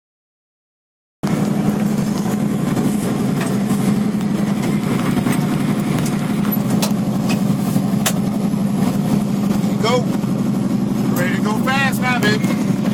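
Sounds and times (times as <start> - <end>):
race truck engine running: 1.2 - 12.9.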